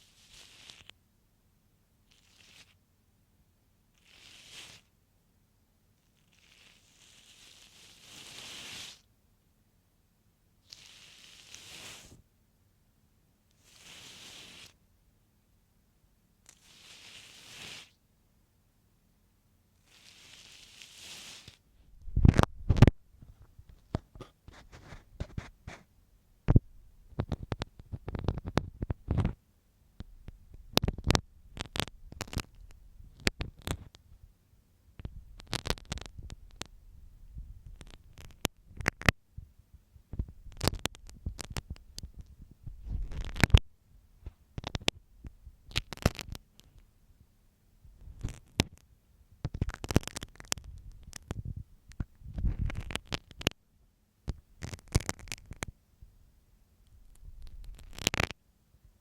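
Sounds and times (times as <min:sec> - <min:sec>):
pin scratching on microphone: 0:02.1 - 0:02.8, 0:19.9 - 0:22.9, 0:23.7 - 0:25.9, 0:27.1 - 0:29.4, 0:30.6 - 0:34.0, 0:35.0 - 0:36.7, 0:37.6 - 0:39.1, 0:40.2 - 0:43.6, 0:45.7 - 0:46.7, 0:48.0 - 0:48.8, 0:49.5 - 0:53.6, 0:54.3 - 0:55.7, 0:57.0 - 0:58.4.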